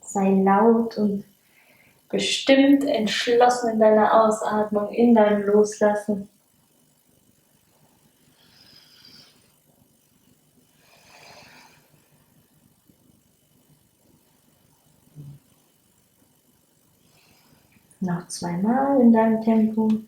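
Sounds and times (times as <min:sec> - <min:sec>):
woman breathing audibly: 0:01.4 - 0:02.1, 0:10.7 - 0:12.4, 0:17.0 - 0:17.9.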